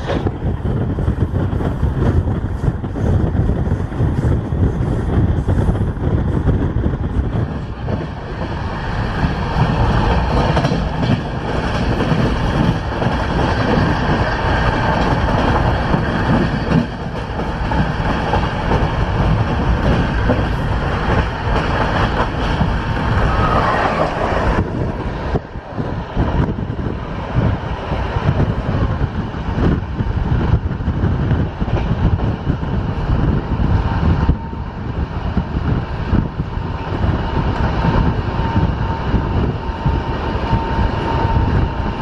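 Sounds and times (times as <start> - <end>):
clickety-clack of rail joints: 0.0 - 42.0
train wheels rumbling on track: 0.0 - 42.0.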